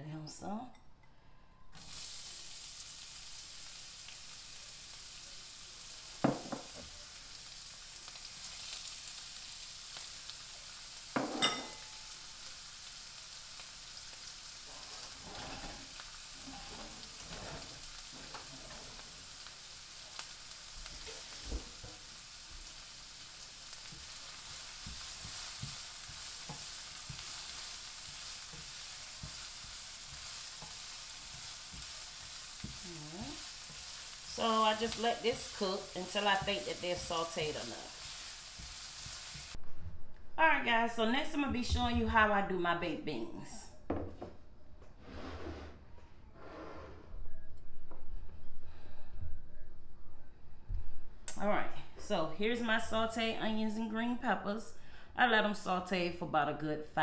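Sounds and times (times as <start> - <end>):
vegetables sizzling in a frying pan: 1.8 - 39.6
spatula stirring: 20.3 - 39.6.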